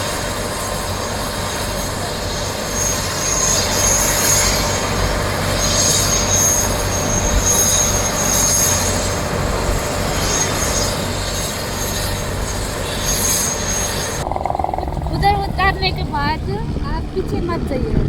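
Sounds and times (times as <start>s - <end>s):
helicopter running: 13.6s - 18.0s.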